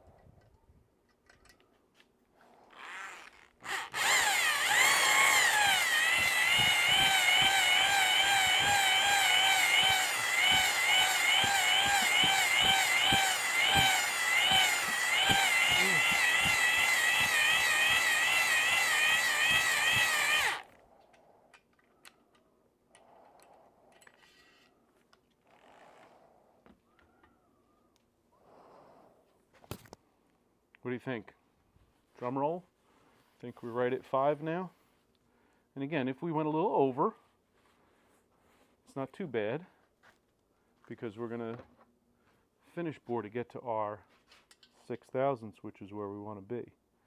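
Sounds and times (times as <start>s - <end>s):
electric drill whining: 2.8s - 20.7s.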